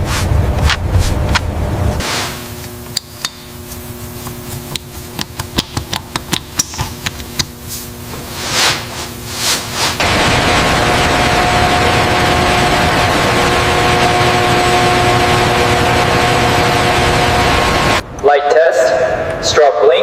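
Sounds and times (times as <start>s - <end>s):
hand tools tapping metal: 2.9s - 3.5s, 4.2s - 7.5s
loud rushing noise: 8.4s - 18.0s.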